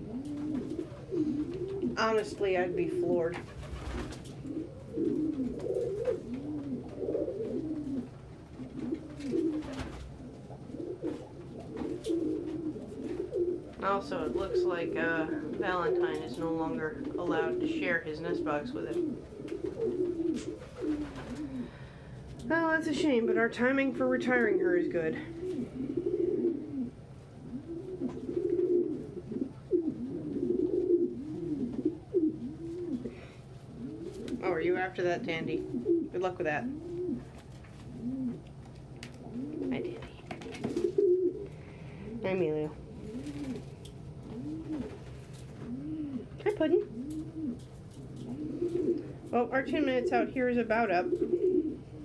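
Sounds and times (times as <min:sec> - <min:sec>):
pigeons cooing: 0:00.0 - 0:52.0.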